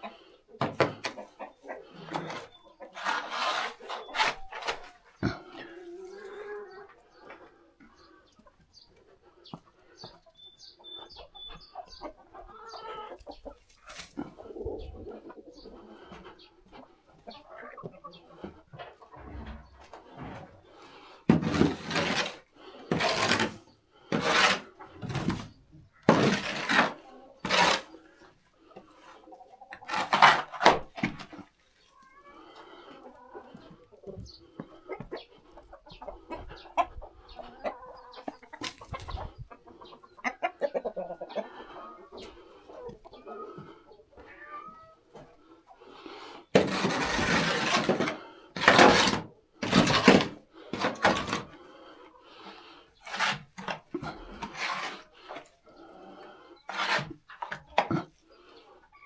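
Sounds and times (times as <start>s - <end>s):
chickens clucking: 0.0s - 47.0s, 47.8s - 59.0s
loud scraping strokes: 2.2s - 4.9s, 21.3s - 25.5s, 26.1s - 28.0s, 46.6s - 51.5s.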